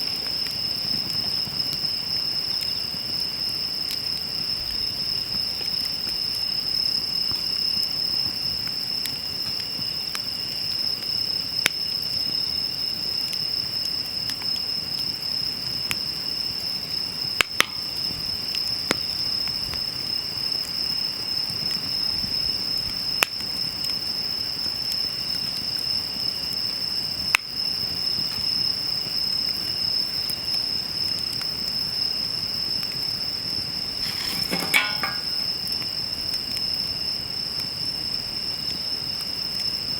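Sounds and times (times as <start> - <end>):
crickets trilling: 0.0 - 39.9
wood fire crackling: 0.0 - 39.9
burning wood pops: 33.8 - 36.6.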